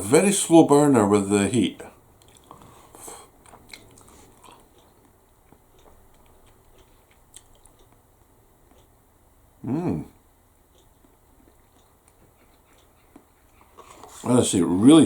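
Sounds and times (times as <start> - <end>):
person chewing noodles: 2.2 - 8.1, 10.7 - 14.3.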